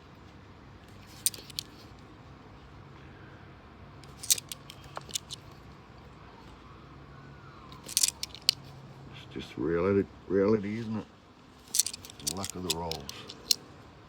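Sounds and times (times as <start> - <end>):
coins clinking together: 1.1 - 1.7, 4.1 - 5.4, 7.8 - 8.6, 11.7 - 13.6.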